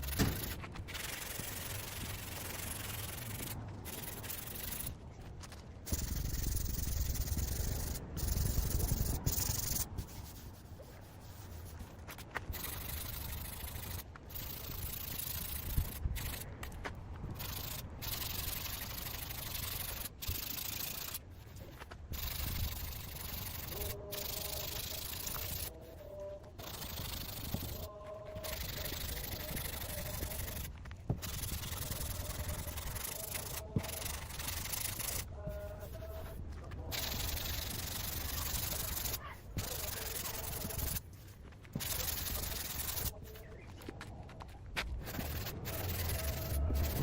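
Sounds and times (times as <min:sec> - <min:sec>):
sanding car bodywork: 0:00.0 - 0:04.9, 0:05.9 - 0:16.0, 0:45.0 - 0:47.0.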